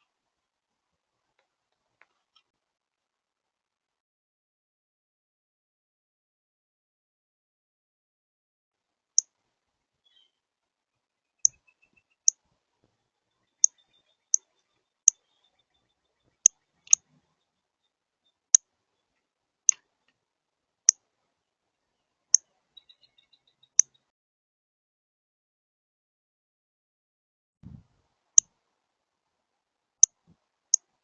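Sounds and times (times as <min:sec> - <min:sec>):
faint thin bird twitters: 0:13.4 - 0:17.6.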